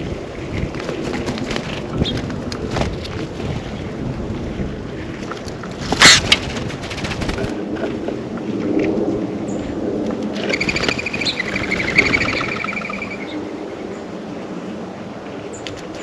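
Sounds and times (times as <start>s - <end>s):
steady low rumble: 0.0s - 16.0s
songbird calling: 10.4s - 14.0s.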